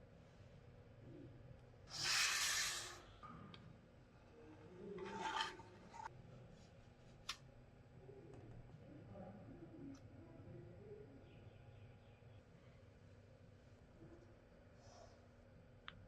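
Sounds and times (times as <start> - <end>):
rasping scrape strokes: 1.9 - 3.1, 5.0 - 6.1.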